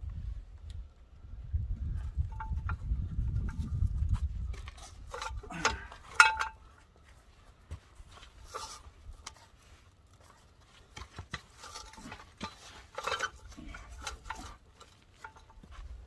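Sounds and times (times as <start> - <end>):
metal clinks and scraping: 2.0 - 6.9, 8.2 - 16.0.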